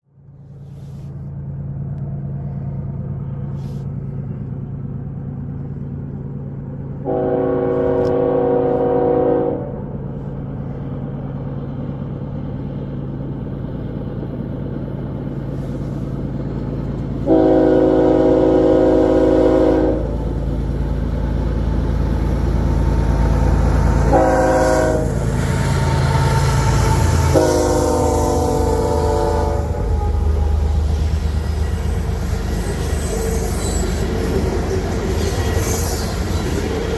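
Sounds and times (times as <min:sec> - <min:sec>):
diesel locomotive rumble: 0:00.0 - 0:36.9
locomotive horn: 0:07.0 - 0:09.9, 0:17.2 - 0:20.4, 0:23.6 - 0:31.0.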